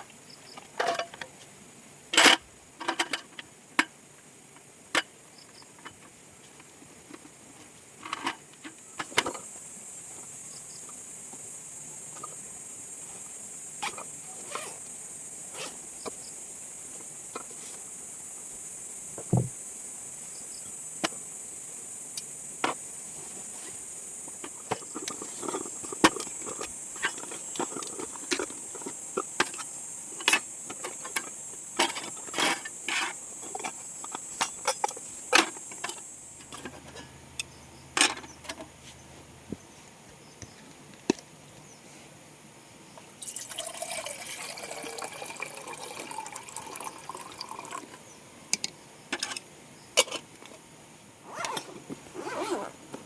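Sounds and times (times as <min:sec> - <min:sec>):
camp gear clicks and knocks: 0:00.5 - 0:01.4, 0:02.1 - 0:04.0, 0:04.6 - 0:11.5, 0:13.7 - 0:14.9, 0:19.1 - 0:19.6, 0:22.2 - 0:41.5, 0:47.8 - 0:53.0
water pouring into a container: 0:43.2 - 0:47.8.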